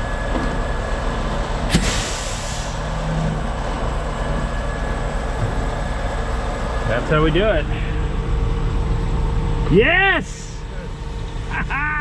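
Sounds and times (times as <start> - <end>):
diesel engine running: 0.0 - 12.0
sharp click and hiss: 1.7 - 2.7.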